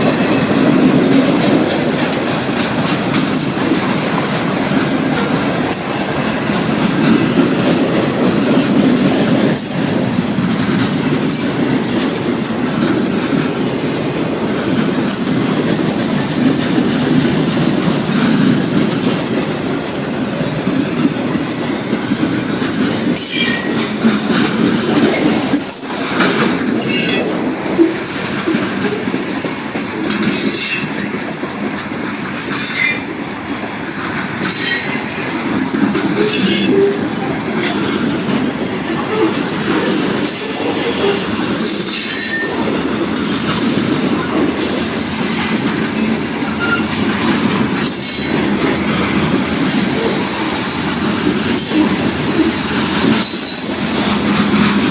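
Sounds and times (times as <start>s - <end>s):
train cars rumbling on rails: 0.0s - 54.9s
train wheels squealing: 3.2s - 4.2s, 5.7s - 7.4s, 9.5s - 10.5s, 11.2s - 12.2s, 15.0s - 15.6s, 23.2s - 24.6s, 25.5s - 26.2s, 30.1s - 31.1s, 32.5s - 33.7s, 34.4s - 35.2s, 36.2s - 37.8s, 39.0s - 43.8s, 46.5s - 47.0s, 47.8s - 49.2s, 51.2s - 54.7s.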